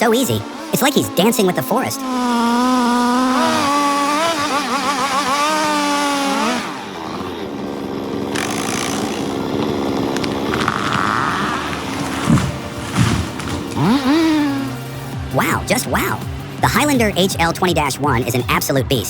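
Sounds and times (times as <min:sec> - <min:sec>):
chainsaw cutting: 0:00.0 - 0:18.8.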